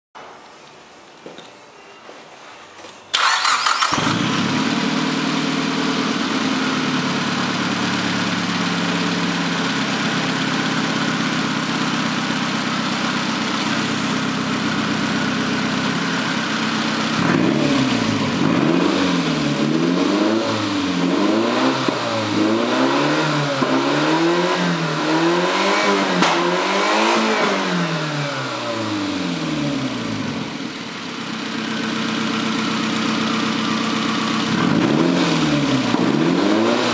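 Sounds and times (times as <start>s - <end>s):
car engine starting and idling: 3.1s - 36.9s
engine revving: 3.2s - 8.8s, 16.9s - 30.3s, 34.0s - 36.9s.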